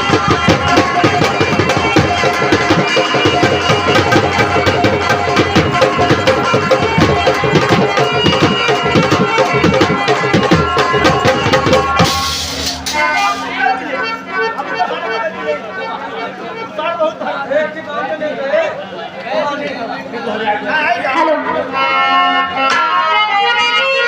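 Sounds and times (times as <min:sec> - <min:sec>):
hand drum beaten fast: 0:00.0 - 0:13.4
held instrumental melody: 0:00.0 - 0:17.4.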